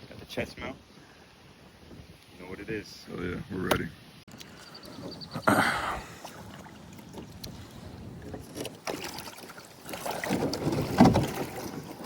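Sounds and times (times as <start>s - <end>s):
paddle splashing in water: 4.9s - 12.0s.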